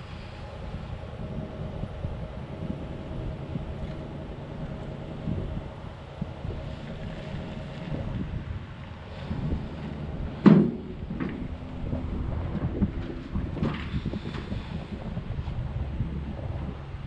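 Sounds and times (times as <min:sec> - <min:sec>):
low rumbling microphone noise: 0:00.0 - 0:17.0
knocks: 0:10.4 - 0:11.6.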